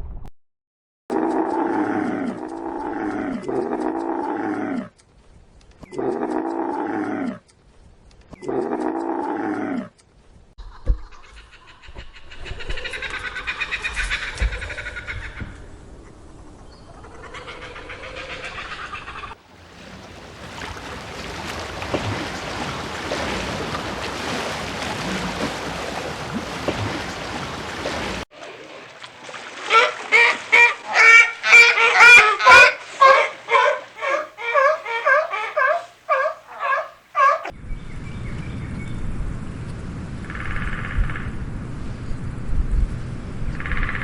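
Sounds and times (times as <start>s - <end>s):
waterfowl calling: 17.5s - 37.5s
water splashing: 19.4s - 37.5s.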